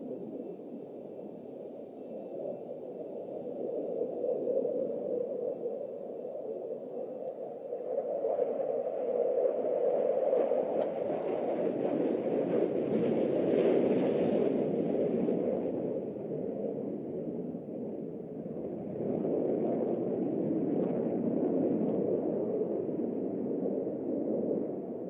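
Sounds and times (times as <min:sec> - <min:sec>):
jet aircraft engine roar: 0:00.0 - 0:07.6.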